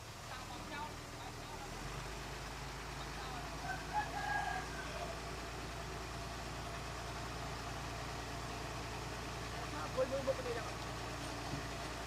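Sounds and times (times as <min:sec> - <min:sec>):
diesel engine idling: 0:00.0 - 0:12.0
rooster crowing: 0:03.6 - 0:05.4.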